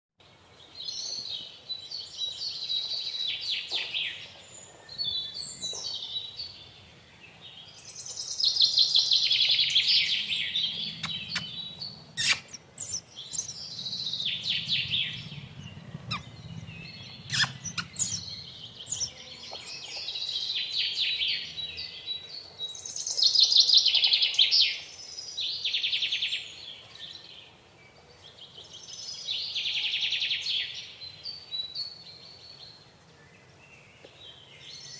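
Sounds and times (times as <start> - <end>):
baby sparrow chirping: 10.2 - 15.0, 15.6 - 19.2
sharp clicks: 11.0 - 11.6.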